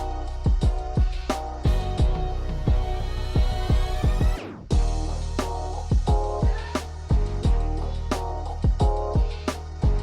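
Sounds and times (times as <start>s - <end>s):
kick drum thumps: 0.5s - 4.9s, 5.9s - 7.6s, 8.6s - 10.0s.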